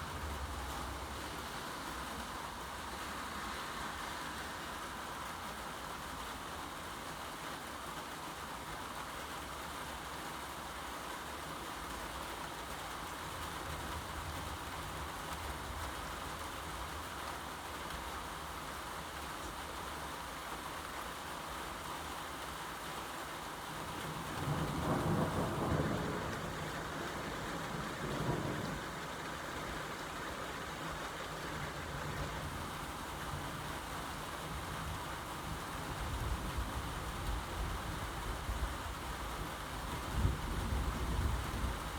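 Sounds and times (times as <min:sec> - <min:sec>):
steady rain falling: 0:00.0 - 0:41.9
thunder rumble: 0:23.9 - 0:33.8.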